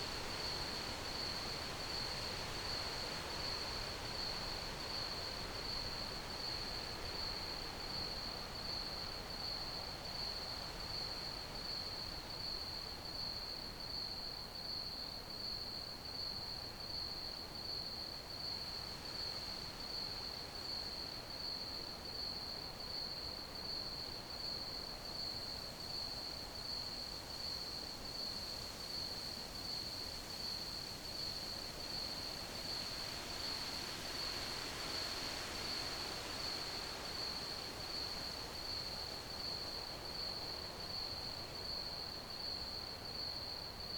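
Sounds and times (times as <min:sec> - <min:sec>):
crickets chirping: 0:18.4 - 0:43.9.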